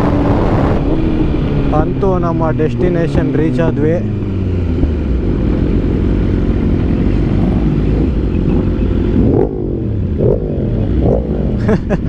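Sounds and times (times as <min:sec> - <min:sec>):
motorcycle engine low rumble: 0:00.0 - 0:12.0.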